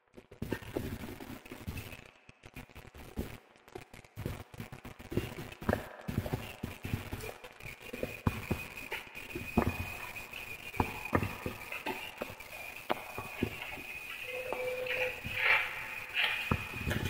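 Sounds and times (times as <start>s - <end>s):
wood fire crackling: 0.0s - 17.0s
sharp pops of fire: 0.1s - 17.0s
faint high whistle: 7.8s - 17.0s.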